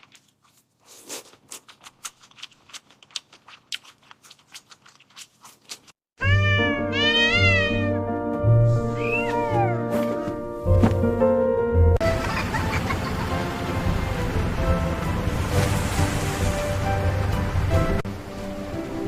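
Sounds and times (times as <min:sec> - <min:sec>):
cat meowing: 0:06.2 - 0:08.0, 0:08.8 - 0:09.9
background music: 0:06.2 - 0:19.0.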